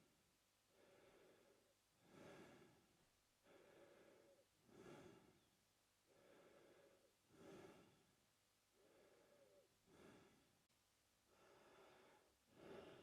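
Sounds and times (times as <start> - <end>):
man breathing through mouth: 0.8 - 2.8, 3.4 - 5.5, 6.1 - 8.0, 8.8 - 10.5, 11.3 - 13.0.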